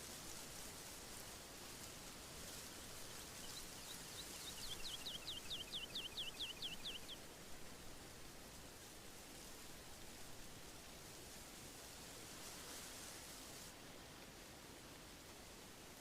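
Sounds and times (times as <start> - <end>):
wind rustling trees: 0.0 - 16.0
bird whistling song: 3.4 - 7.2.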